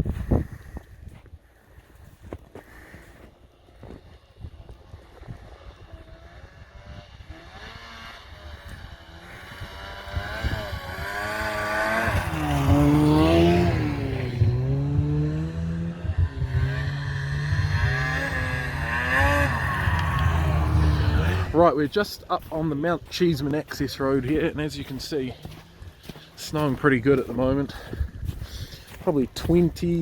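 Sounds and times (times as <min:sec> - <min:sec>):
vehicle engine revving: 0:02.7 - 0:22.6.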